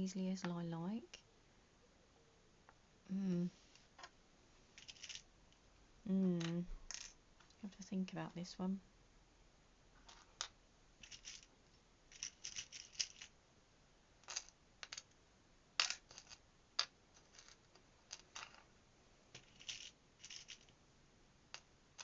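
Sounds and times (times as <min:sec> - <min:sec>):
small metal pieces clicking: 0:10.1 - 0:11.5, 0:12.1 - 0:13.3, 0:19.4 - 0:20.7.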